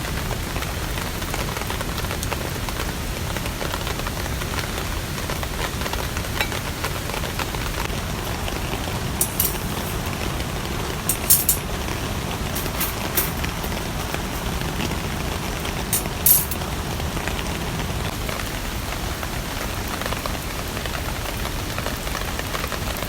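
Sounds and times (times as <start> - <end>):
steady rain: 0.0 - 23.0.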